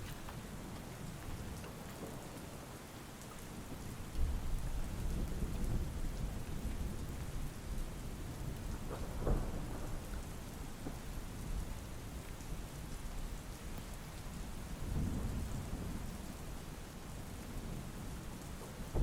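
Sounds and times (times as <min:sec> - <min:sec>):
steady rain: 0:00.0 - 0:19.0
rolling thunder: 0:08.1 - 0:11.0, 0:18.7 - 0:19.0.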